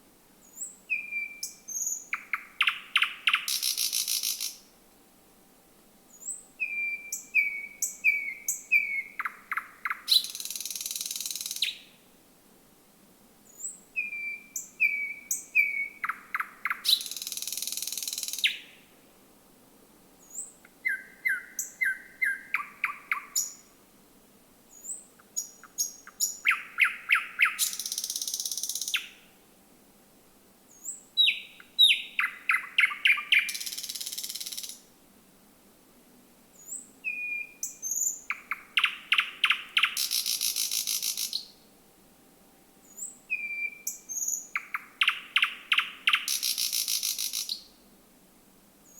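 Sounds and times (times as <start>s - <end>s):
bird singing: 0.4s - 4.7s, 6.1s - 11.9s, 13.5s - 18.8s, 20.2s - 23.7s, 24.7s - 29.3s, 30.7s - 34.8s, 36.6s - 41.6s, 42.8s - 47.8s.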